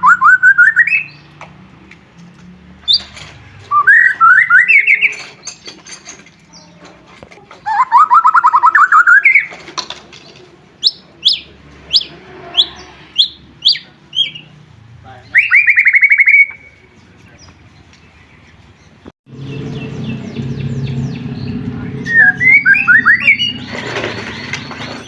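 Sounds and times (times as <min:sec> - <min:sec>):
bird singing trills and whistles: 0:00.0 - 0:01.3, 0:03.7 - 0:05.8, 0:07.7 - 0:09.6, 0:10.8 - 0:14.6, 0:15.2 - 0:17.6, 0:19.4 - 0:25.0
low hum: 0:19.3 - 0:24.8.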